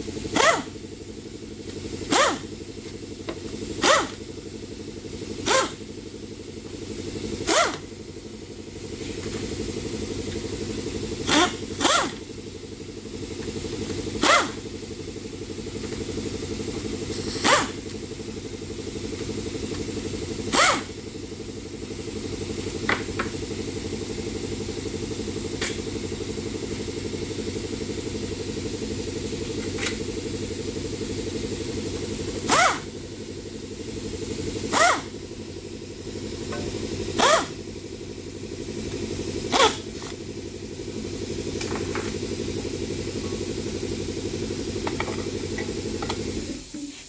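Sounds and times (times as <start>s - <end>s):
air compressor running: 0.0s - 47.0s
pneumatic tool bursts: 0.1s - 1.0s, 1.9s - 2.7s, 3.6s - 4.4s, 5.3s - 6.0s, 7.2s - 7.9s, 9.2s - 12.4s, 13.2s - 14.8s, 16.4s - 21.2s, 31.0s - 33.2s, 34.0s - 43.8s, 44.6s - 47.0s.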